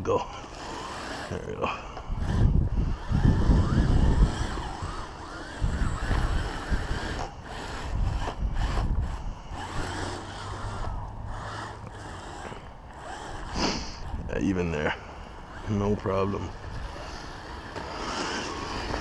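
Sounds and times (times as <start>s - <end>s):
electric motor whining: 0.0s - 19.0s
wind rumble on microphone: 2.0s - 11.5s, 13.4s - 14.6s.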